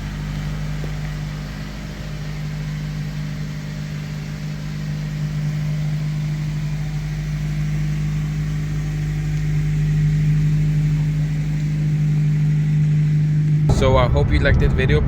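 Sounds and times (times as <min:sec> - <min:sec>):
car exhaust low drone: 0:00.0 - 0:15.0.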